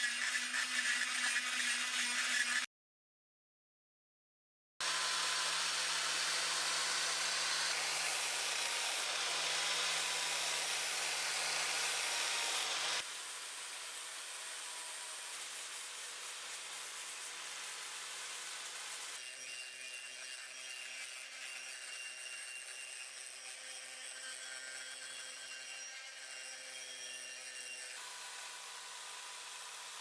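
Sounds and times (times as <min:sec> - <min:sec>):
power tool running: 0:04.8 - 0:19.3, 0:28.0 - 0:30.0.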